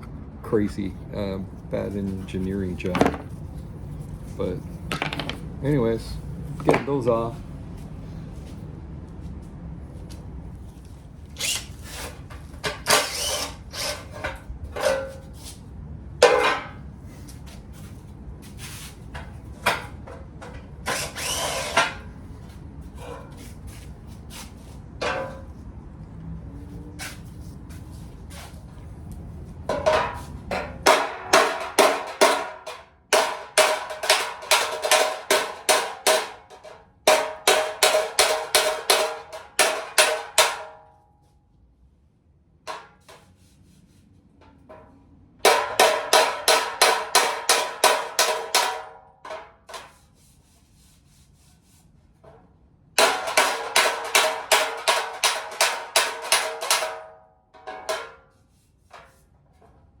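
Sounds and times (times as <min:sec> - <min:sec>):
hammer striking steel bumper: 0:16.2 - 0:16.8, 0:29.7 - 0:41.0, 0:44.5 - 0:49.8, 0:53.0 - 0:58.4.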